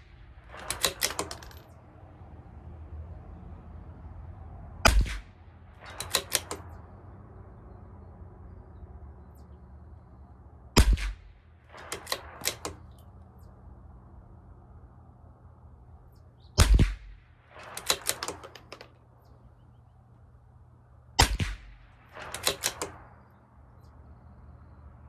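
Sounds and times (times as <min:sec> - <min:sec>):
rifle shots: 0:00.0 - 0:01.8, 0:04.9 - 0:06.8, 0:10.8 - 0:13.0, 0:16.6 - 0:18.9, 0:21.2 - 0:23.5
metallic bolt clicks: 0:00.5 - 0:01.8, 0:05.8 - 0:06.8, 0:11.7 - 0:13.6, 0:17.6 - 0:19.4, 0:22.2 - 0:23.2.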